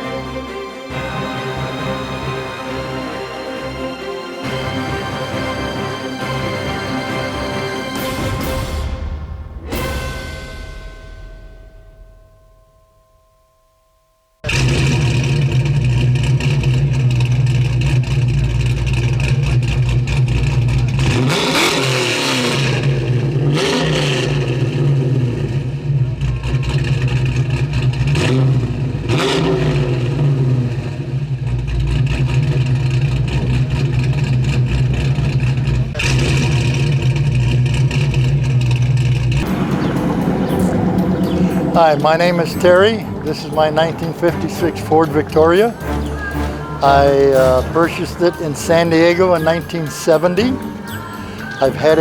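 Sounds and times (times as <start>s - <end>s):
car engine starting and revving: 14.4s - 52.0s.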